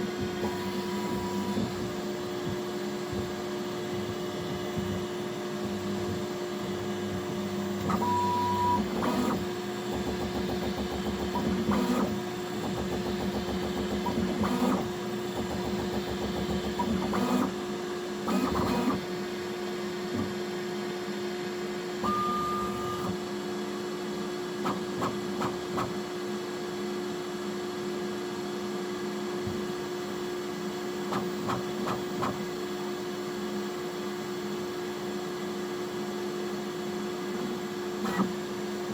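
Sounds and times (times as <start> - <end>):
high steady motor tone: 22.0 - 23.1.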